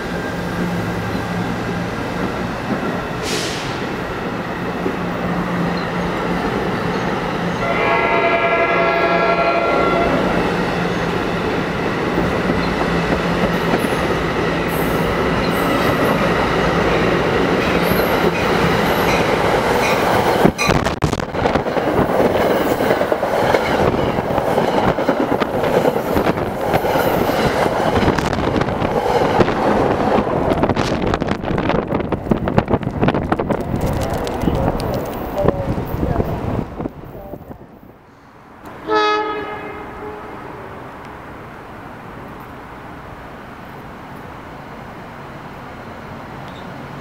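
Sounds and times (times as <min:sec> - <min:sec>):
train rumbling past: 0:00.0 - 0:47.0
train wheels clattering on rails: 0:11.8 - 0:36.0.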